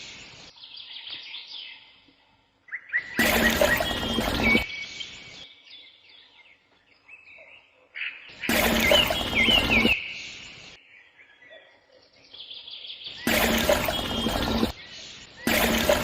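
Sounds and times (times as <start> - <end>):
birds chirping: 0.0 - 16.0
loud burst of noise: 3.2 - 4.6, 8.5 - 10.0, 13.2 - 14.8, 15.4 - 16.0.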